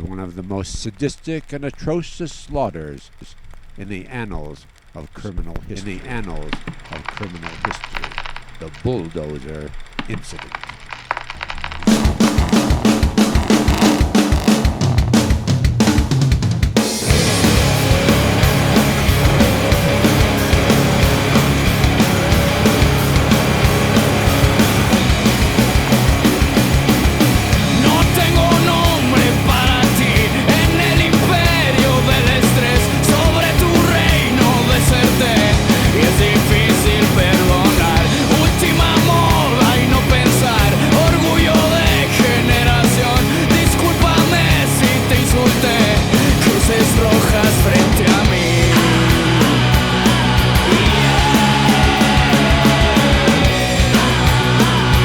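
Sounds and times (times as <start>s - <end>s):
driving drum beat: 0.0s - 55.0s
rock band music: 11.9s - 55.0s.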